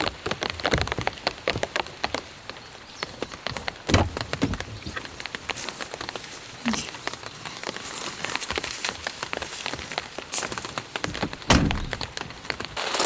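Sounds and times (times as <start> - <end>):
rain on a tent: 0.0 - 13.0
loud thud: 11.5 - 12.1.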